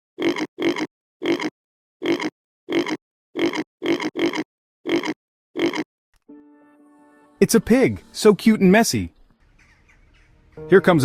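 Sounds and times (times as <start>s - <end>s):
pig grunting: 0.2s - 5.9s.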